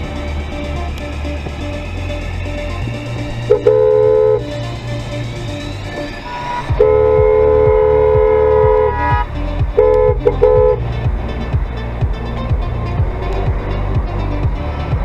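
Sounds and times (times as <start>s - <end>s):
car horn honking: 3.5s - 4.6s, 6.3s - 10.9s.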